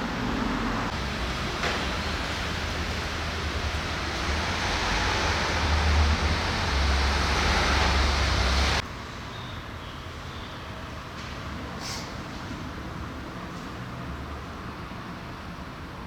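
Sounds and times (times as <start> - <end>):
car engine drone: 0.0 - 8.8
wind and road noise: 0.0 - 9.1.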